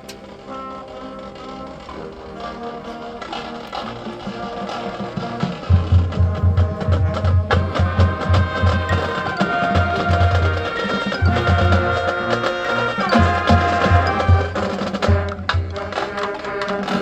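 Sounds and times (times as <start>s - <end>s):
light percussion: 0.0s - 17.0s
wind and brass chords: 0.0s - 17.0s
deep drum beats: 5.1s - 17.0s.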